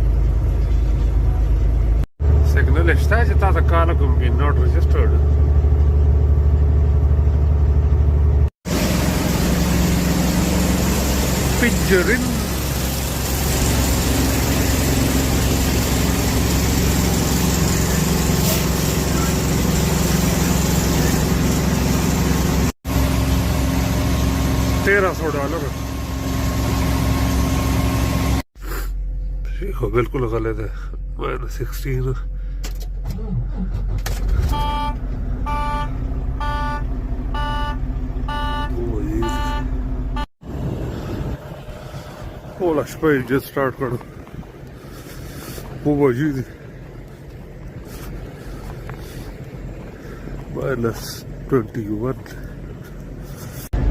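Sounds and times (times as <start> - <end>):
car driving rumble: 0.0 - 53.9
engine and road noise in cabin: 0.0 - 53.9
electronic warning chime beeping: 34.6 - 36.8, 37.4 - 40.3.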